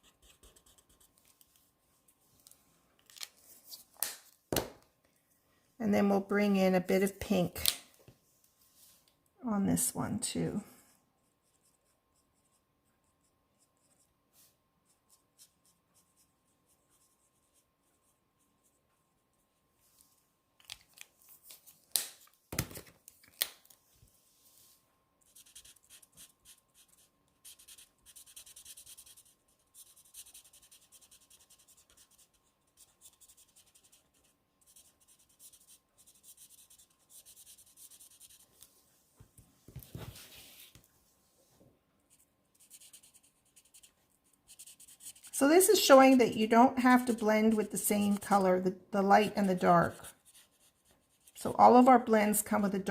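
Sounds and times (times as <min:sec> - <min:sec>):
marker scratching on cardstock: 0:00.0 - 0:01.2, 0:25.3 - 0:38.6, 0:42.1 - 0:48.5, 0:49.2 - 0:51.5.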